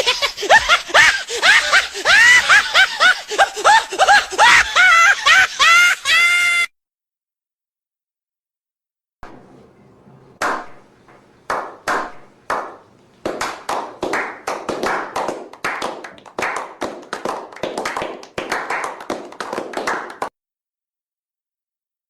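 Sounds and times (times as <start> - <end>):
hand claps: 9.2 - 20.3.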